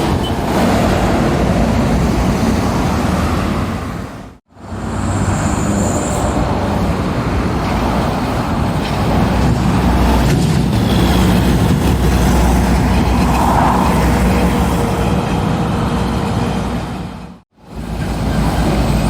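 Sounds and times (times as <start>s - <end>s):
lorries and traffic passing: 0.0s - 19.0s.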